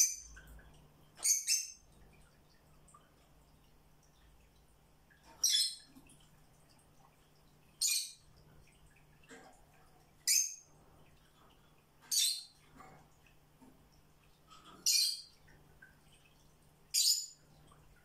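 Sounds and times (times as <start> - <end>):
bird chirping: 0.0 - 0.4, 1.2 - 1.9, 5.3 - 6.0, 7.8 - 8.2, 10.2 - 10.6, 12.0 - 12.6, 14.8 - 15.4, 16.9 - 17.4.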